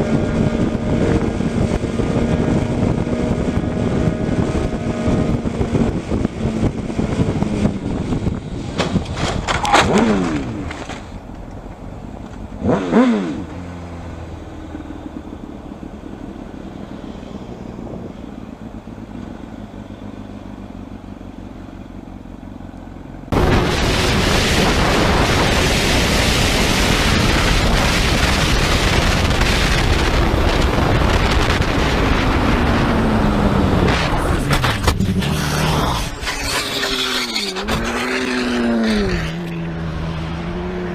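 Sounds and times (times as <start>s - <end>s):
loud even rushing noise: 23.3s - 40.2s
motorcycles passing by: 29.9s - 40.9s.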